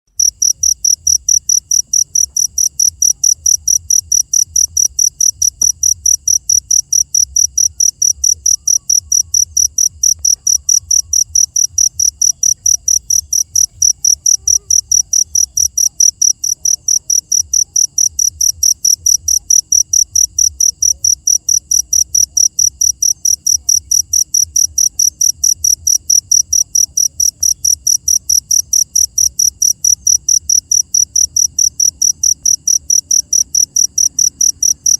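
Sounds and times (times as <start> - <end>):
cricket chirping: 0.1 - 34.9.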